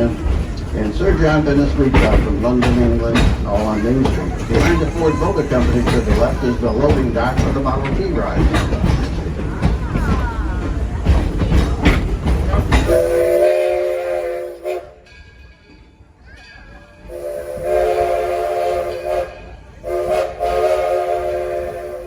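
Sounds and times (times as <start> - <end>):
moving train rumble: 0.0 - 22.0
train whistle blasts: 12.9 - 15.0, 17.1 - 22.0.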